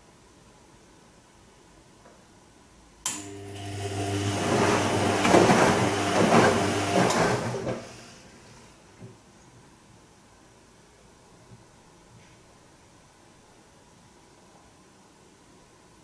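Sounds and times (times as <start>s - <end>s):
washing machine drum motor hum: 3.2s - 9.2s
laundry and water swishing: 3.8s - 8.7s.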